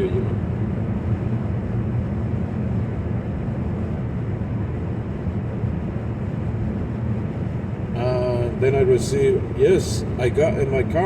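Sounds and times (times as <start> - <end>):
road and engine noise in car: 0.0 - 11.0.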